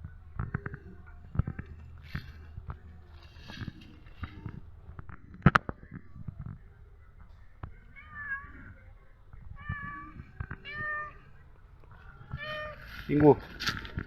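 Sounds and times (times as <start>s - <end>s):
cat meowing: 7.8s - 11.4s, 12.1s - 13.1s.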